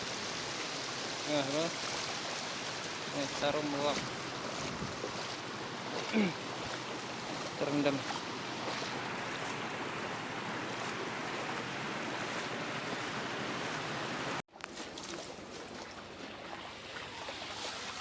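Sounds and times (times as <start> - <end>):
thin water trickling: 0.0 - 13.8
floodwater rushing: 0.0 - 18.0.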